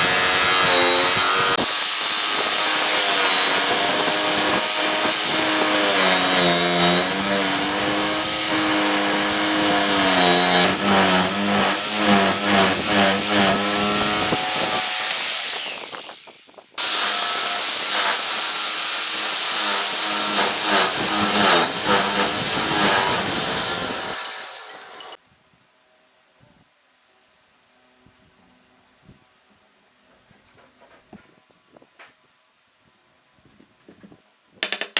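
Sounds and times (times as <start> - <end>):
electric power tool cutting wood: 0.0 - 25.2.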